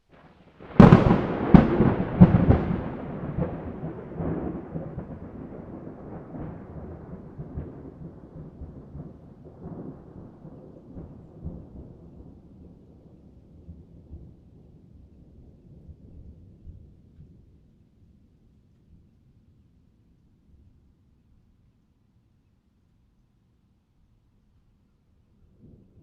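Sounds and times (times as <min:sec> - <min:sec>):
thunder cracks: 0:00.6 - 0:12.8
rolling thunder rumble: 0:00.6 - 0:17.7, 0:25.5 - 0:26.0.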